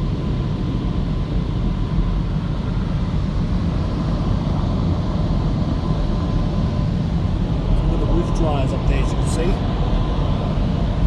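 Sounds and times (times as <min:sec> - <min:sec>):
dryer blowers rushing air: 0:02.6 - 0:11.0.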